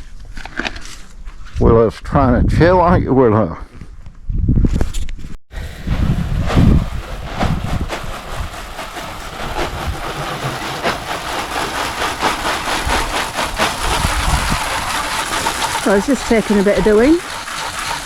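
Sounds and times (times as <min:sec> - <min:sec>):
brush scrubbing panels: 0:06.0 - 0:18.0.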